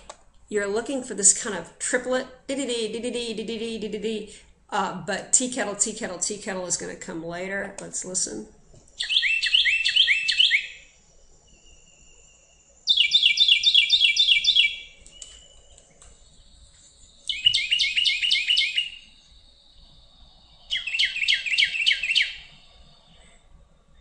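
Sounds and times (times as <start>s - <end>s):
bird singing: 9.0s - 24.0s.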